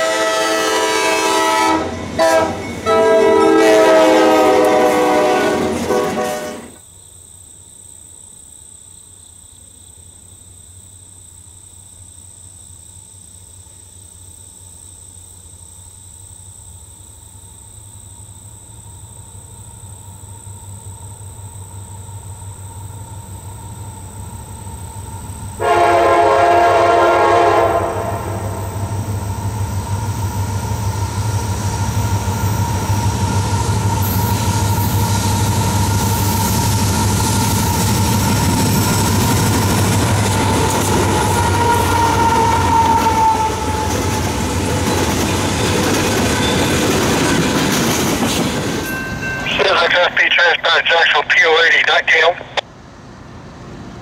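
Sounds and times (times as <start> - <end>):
locomotive horn blast: 0.0 - 6.8, 25.6 - 28.9
diesel locomotive rumble: 19.0 - 54.0.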